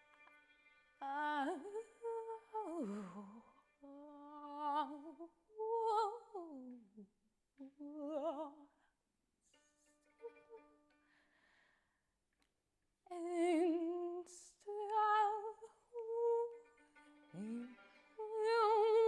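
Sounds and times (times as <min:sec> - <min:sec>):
woman singing wordless phrases: 0:01.0 - 0:08.7, 0:13.1 - 0:16.6, 0:17.3 - 0:19.0.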